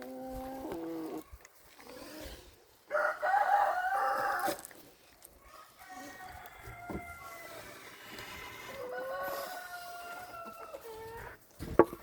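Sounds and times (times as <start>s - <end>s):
rooster crowing: 2.9s - 4.6s, 5.8s - 7.9s, 8.8s - 11.0s.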